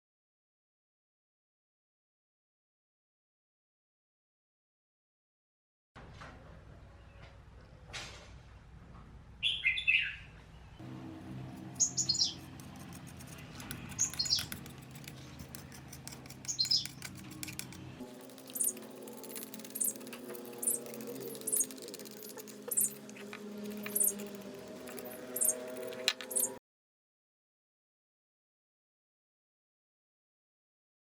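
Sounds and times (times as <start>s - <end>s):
birds chirping: 11.6s - 26.6s.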